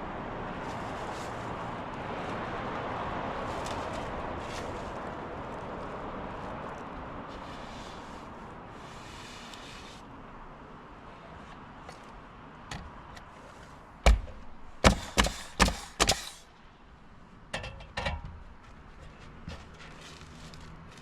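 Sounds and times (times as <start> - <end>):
hammer blows: 14.0 - 16.5.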